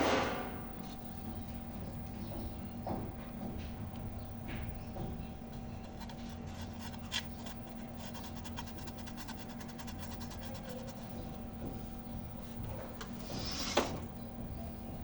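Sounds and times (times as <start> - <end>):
steady low hum: 0.0 - 15.0
light scraping: 12.4 - 14.1.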